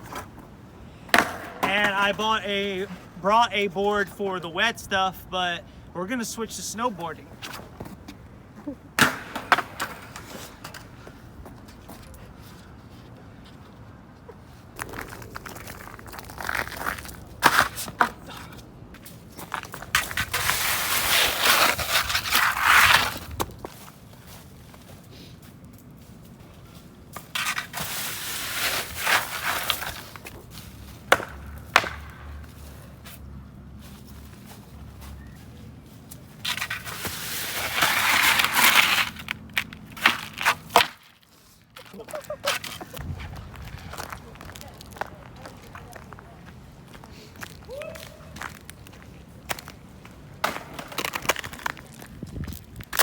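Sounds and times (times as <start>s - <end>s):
skateboard scraping through snow: 19.5s - 24.5s, 27.3s - 30.9s, 36.4s - 40.8s.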